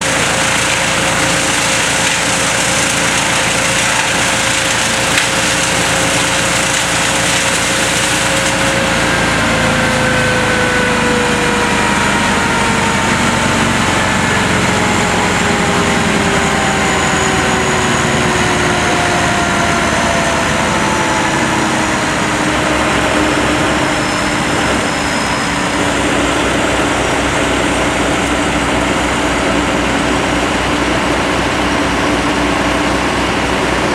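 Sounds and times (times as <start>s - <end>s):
chainsaw cutting: 0.0s - 10.5s
truck engine running: 0.0s - 33.9s.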